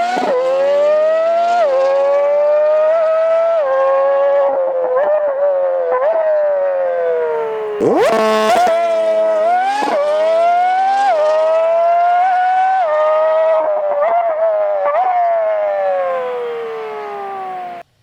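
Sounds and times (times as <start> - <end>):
sped-up car exhaust revving: 0.0 - 3.4, 7.7 - 18.0.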